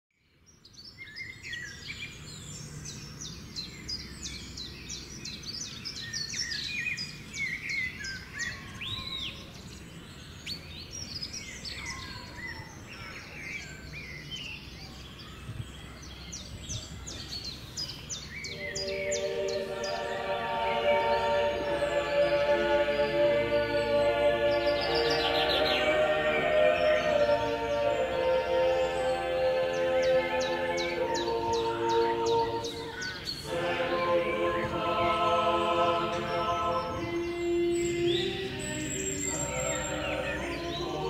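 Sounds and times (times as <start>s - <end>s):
songbirds chirping and trilling: 0.1s - 41.0s
music with held notes: 18.6s - 41.0s.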